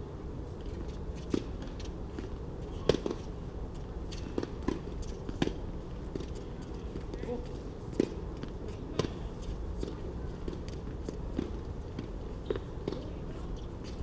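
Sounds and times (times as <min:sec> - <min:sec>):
tennis balls struck and bouncing: 0:01.2 - 0:03.2, 0:04.3 - 0:06.4, 0:09.8 - 0:13.2.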